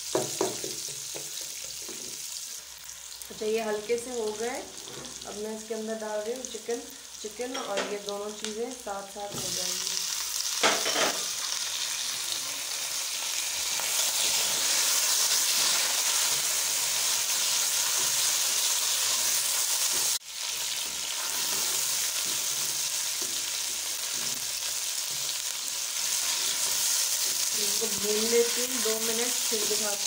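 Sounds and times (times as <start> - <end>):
chicken and onions sizzling in oil: 0.0 - 30.0
spatula stirring in pan: 13.8 - 28.0.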